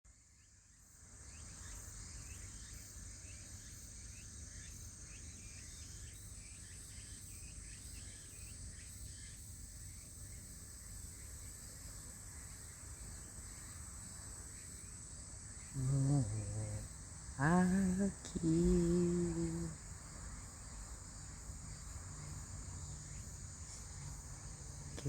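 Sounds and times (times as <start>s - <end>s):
insect high-pitched trill: 15.6s - 20.9s
insect quick repeated chirps: 15.7s - 22.4s.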